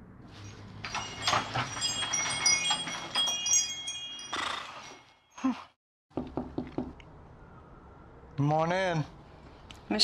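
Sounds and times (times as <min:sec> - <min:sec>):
wind chimes jingling: 0:00.7 - 0:05.7.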